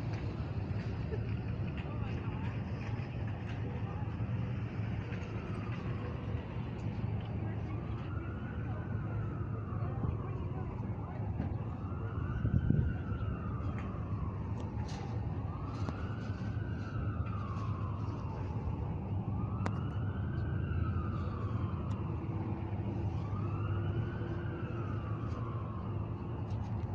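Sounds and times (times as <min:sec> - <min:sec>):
siren wailing: 0:07.6 - 0:26.9.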